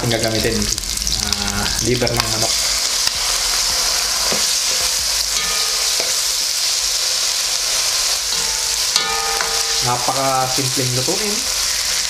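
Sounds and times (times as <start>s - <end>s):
food sizzling in a pan: 0.0s - 12.0s
spatula knocking in a pan: 8.3s - 10.1s.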